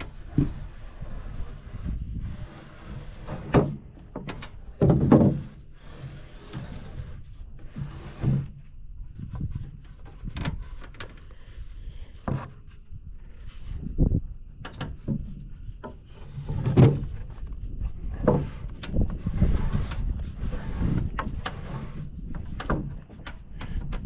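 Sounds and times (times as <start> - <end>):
knocks and thumps on wood framing: 3.4 - 5.5.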